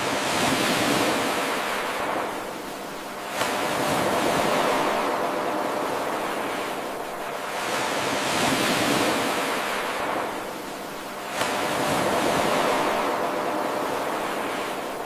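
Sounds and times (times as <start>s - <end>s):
ocean surf washing: 0.0s - 15.0s.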